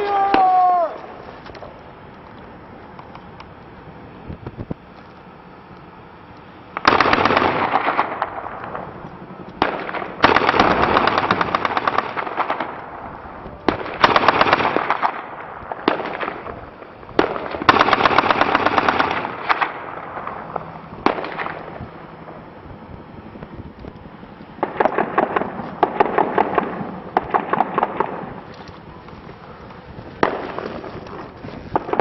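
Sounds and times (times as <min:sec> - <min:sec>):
machine-gun fire bursts: 0:06.8 - 0:08.5, 0:09.6 - 0:12.8, 0:13.7 - 0:16.5, 0:17.2 - 0:19.8, 0:24.6 - 0:28.4, 0:30.2 - 0:30.9, 0:31.7 - 0:32.0.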